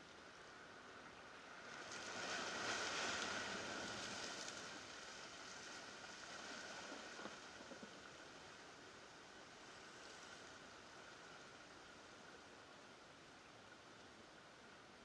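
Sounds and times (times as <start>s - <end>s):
surf washing against rocks: 1.7s - 8.2s.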